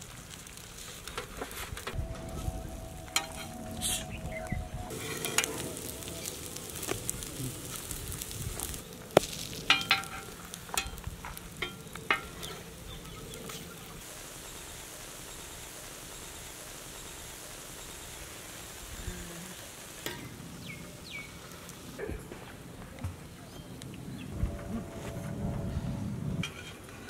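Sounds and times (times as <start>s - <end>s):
toast sizzling on a griddle: 0.0s - 1.9s, 4.9s - 22.0s
metal spatula scraping griddle: 4.9s - 8.8s.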